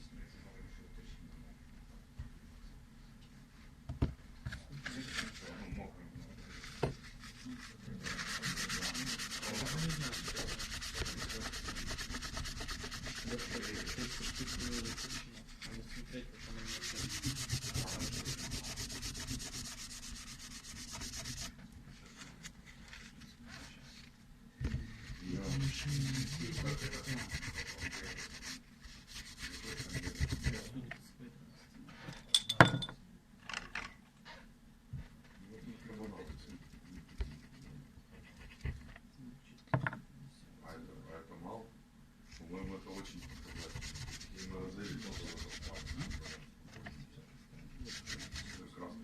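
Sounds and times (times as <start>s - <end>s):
rasping rubbing strokes: 7.0s - 21.6s, 25.0s - 30.8s, 42.9s - 46.4s.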